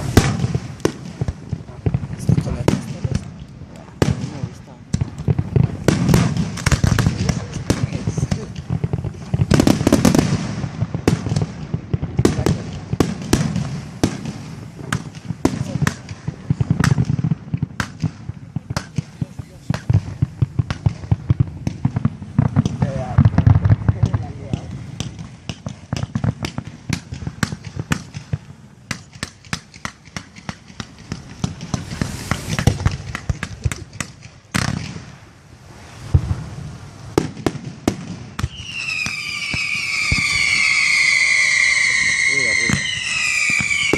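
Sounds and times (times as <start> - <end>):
fireworks bangs: 0.0 - 43.9
low rumble: 30.6 - 34.5.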